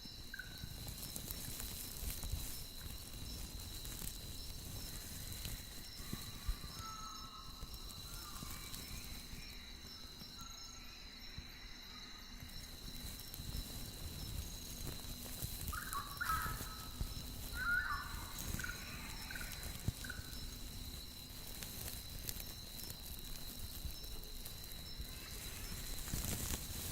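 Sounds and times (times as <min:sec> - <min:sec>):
high-pitched insect drone: 0:00.0 - 0:26.9.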